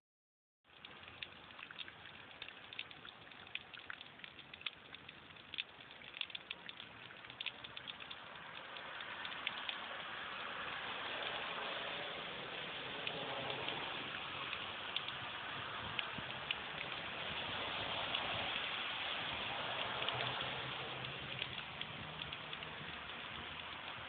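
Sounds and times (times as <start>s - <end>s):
rain drops ticking on hard surface: 0.6s - 24.0s
steady rain patter: 0.6s - 24.0s.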